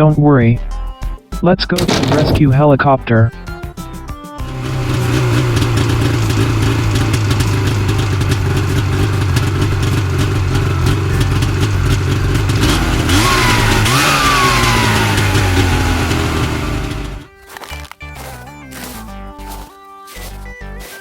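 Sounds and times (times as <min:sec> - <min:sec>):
vehicle engine running and revving: 0:04.4 - 0:17.3, 0:18.2 - 0:19.6.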